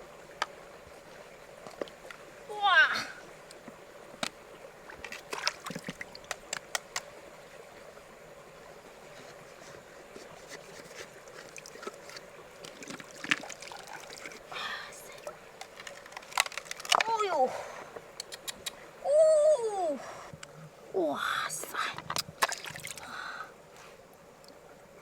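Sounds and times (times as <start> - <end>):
shallow river water splashing: 0.0 - 19.1, 21.7 - 25.0
small clicks and knocks: 5.0 - 7.1, 15.6 - 17.1.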